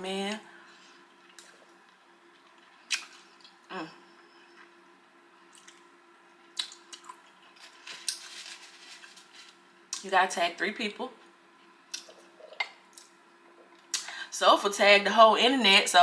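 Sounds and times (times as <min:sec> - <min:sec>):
faint steady hum: 0:00.0 - 0:16.0
person chewing food: 0:05.5 - 0:05.9.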